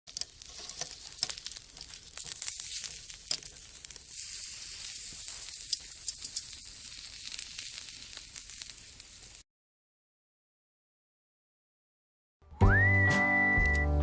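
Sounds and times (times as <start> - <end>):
fire popping and snapping: 0.1 - 9.4
wood fire crackling: 0.1 - 9.4.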